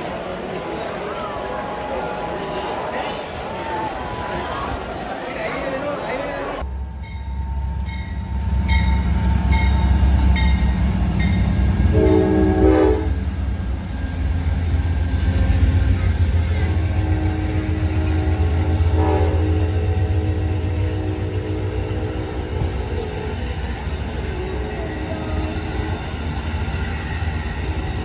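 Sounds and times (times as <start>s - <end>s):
passing train rumble: 0.0s - 28.0s
locomotive bell ringing: 6.6s - 13.1s
train horn blast: 11.8s - 13.3s, 15.3s - 23.4s.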